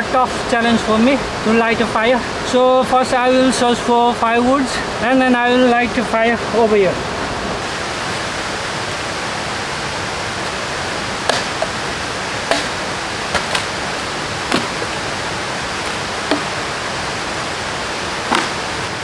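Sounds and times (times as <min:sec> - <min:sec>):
water rushing: 0:07.6 - 0:19.0
sharp cracks or knocks: 0:11.3 - 0:11.9, 0:12.5 - 0:16.8, 0:18.2 - 0:19.0.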